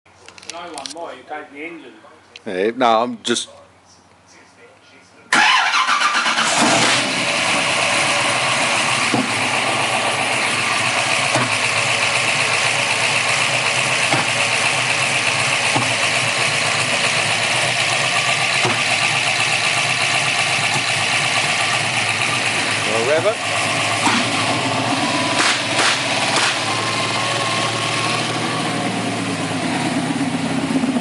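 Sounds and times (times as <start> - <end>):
engine idling: 5.3 - 31.0
engine misfire pops: 9.0 - 9.5, 11.2 - 11.8, 14.0 - 14.6, 15.6 - 16.2, 18.4 - 21.5, 23.9 - 24.5, 25.3 - 26.9.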